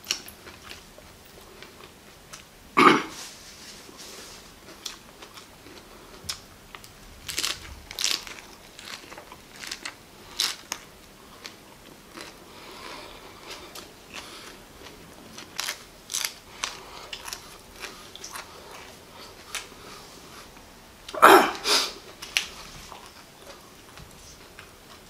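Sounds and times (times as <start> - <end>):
crisp crunching: 6.8 - 19.7.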